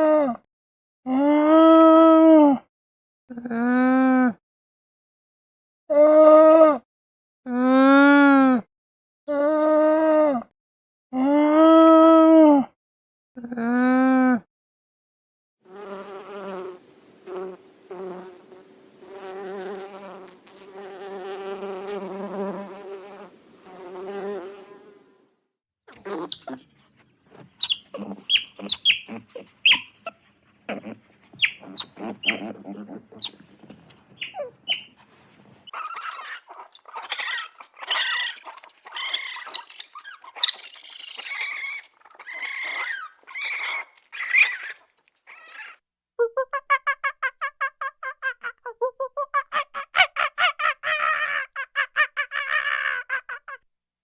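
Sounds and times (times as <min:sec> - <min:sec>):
insect-like buzz: 0:15.7 - 0:25.2
high-pitched animal calls: 0:25.9 - 0:53.6.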